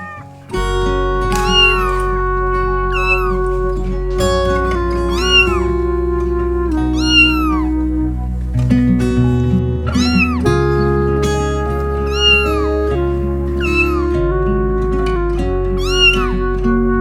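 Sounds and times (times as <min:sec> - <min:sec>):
cat meowing: 0:00.0 - 0:02.2, 0:02.8 - 0:03.6, 0:04.2 - 0:05.8, 0:06.9 - 0:07.7, 0:09.9 - 0:10.9, 0:12.0 - 0:14.2, 0:15.8 - 0:16.4
background music sustained notes: 0:00.0 - 0:17.0.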